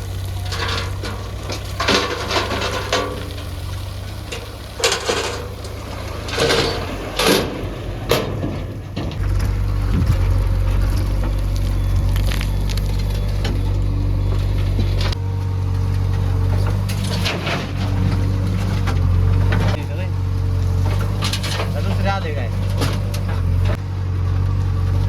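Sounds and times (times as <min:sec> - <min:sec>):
diesel engine running: 0:00.0 - 0:25.0
loader knocks and crunches: 0:00.0 - 0:25.0.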